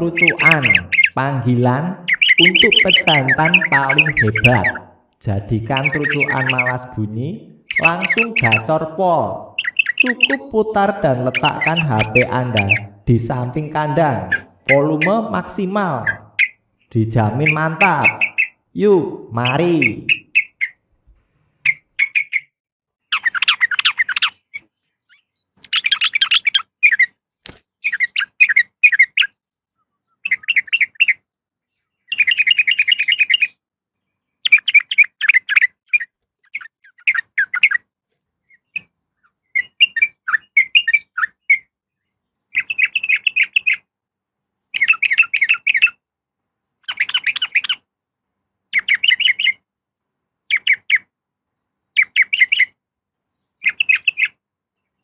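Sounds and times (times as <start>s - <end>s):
bulbul rapid chattering call: 0.0s - 20.8s, 21.6s - 29.4s, 30.0s - 31.2s, 32.1s - 33.6s, 34.4s - 37.8s, 42.6s - 43.9s, 44.8s - 46.0s, 46.8s - 47.9s, 48.7s - 49.6s, 53.6s - 54.4s.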